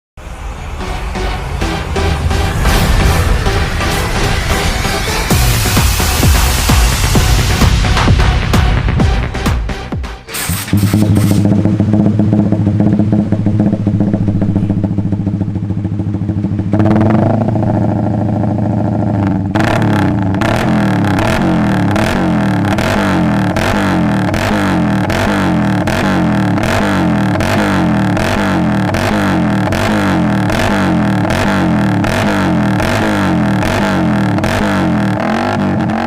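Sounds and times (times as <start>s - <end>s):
regular repeating beat: 0.8s - 10.3s
motorcycle engine idling: 10.8s - 35.2s.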